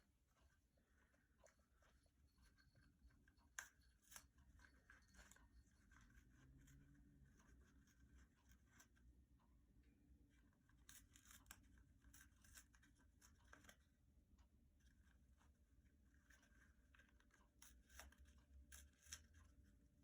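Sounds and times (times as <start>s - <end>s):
parrot tearing toilet paper: 3.6s - 9.1s, 10.4s - 13.9s, 14.9s - 19.7s.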